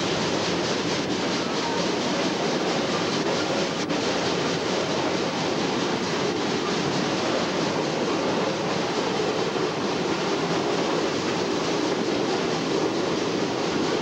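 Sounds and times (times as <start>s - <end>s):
train rumbling along track: 0.0s - 14.0s.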